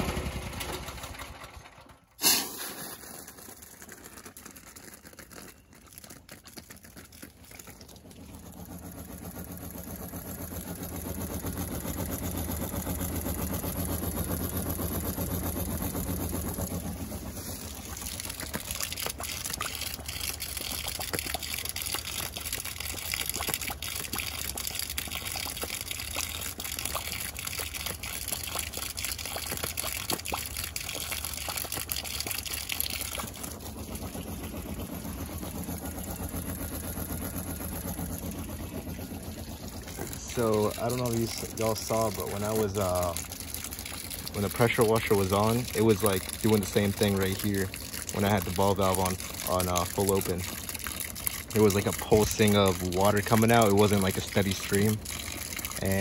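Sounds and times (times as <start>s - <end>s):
pump humming: 0.0s - 56.0s
water pouring in pulses: 2.2s - 56.0s.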